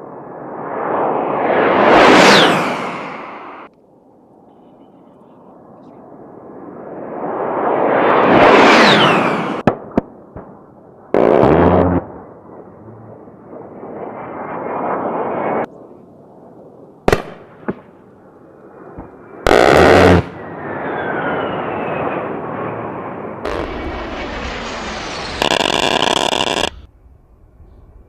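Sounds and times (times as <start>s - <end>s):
faint falling whistle: 20.4s - 22.4s
long rushing rumble: 23.3s - 28.0s
sharp cracks: 23.4s - 26.9s
heavy blast: 23.4s - 28.0s.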